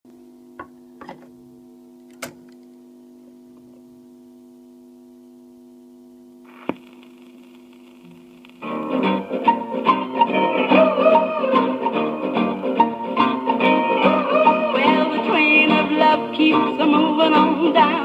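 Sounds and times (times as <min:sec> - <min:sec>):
record deck hum: 0:00.1 - 0:18.0
record surface hiss: 0:00.1 - 0:18.0
stylus landing on record: 0:06.5 - 0:08.7.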